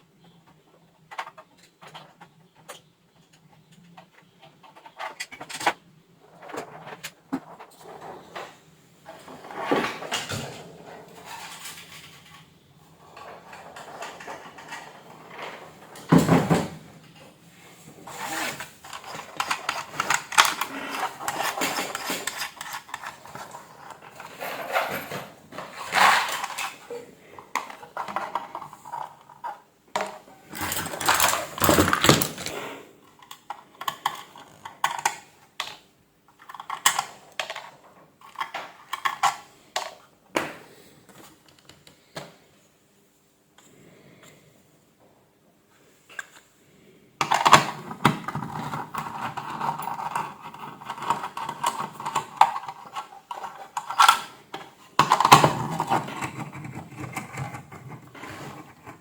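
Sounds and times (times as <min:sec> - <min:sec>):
metal parts clinking: 0:30.5 - 0:32.5.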